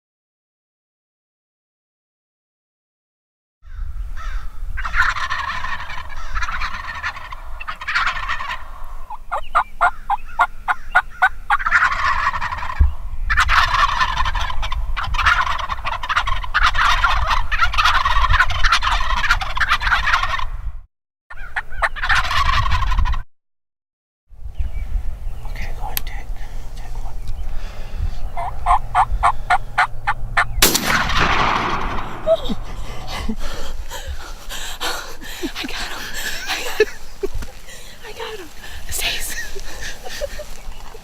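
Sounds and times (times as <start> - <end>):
turkeys gobbling: 4.8 - 20.5, 21.3 - 23.2, 28.4 - 41.0
steady low rumble: 25.1 - 41.0.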